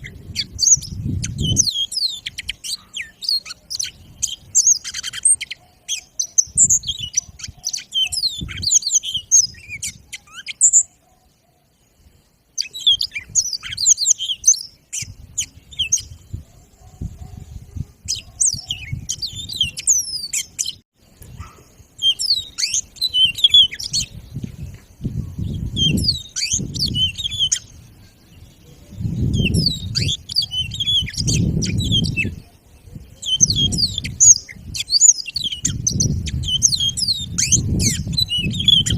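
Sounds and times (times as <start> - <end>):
canary singing: 0.0 - 11.9, 12.5 - 38.9.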